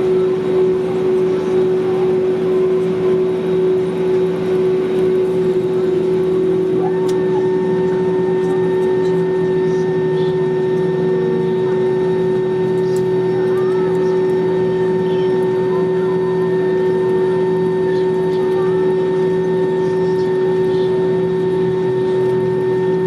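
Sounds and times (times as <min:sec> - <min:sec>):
airplane cabin engine hum: 0:00.0 - 0:23.0
high steady whine: 0:00.0 - 0:23.0.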